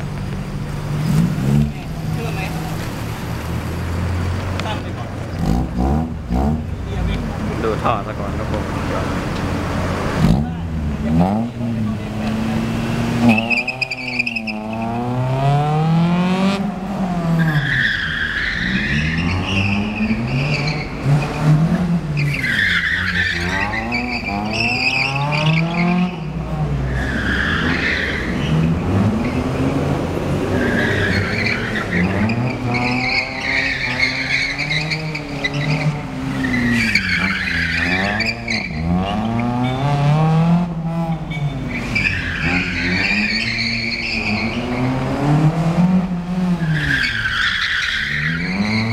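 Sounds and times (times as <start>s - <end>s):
car engine revving: 0.0s - 48.9s
tyres squealing: 10.2s - 15.0s, 17.4s - 29.8s, 30.5s - 40.0s, 41.1s - 45.0s, 46.6s - 48.9s.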